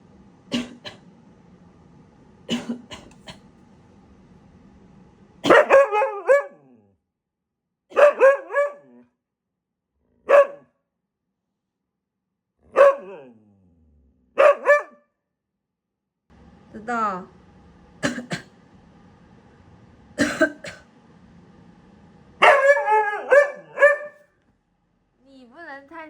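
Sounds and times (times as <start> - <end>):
dog coughing: 0.5 - 1.0, 2.5 - 3.5, 5.4 - 5.8, 7.9 - 8.7, 18.0 - 18.6, 20.2 - 20.9
dog barking: 5.4 - 6.8, 7.9 - 9.0, 10.2 - 10.7, 12.7 - 13.4, 14.4 - 15.1, 22.4 - 24.3.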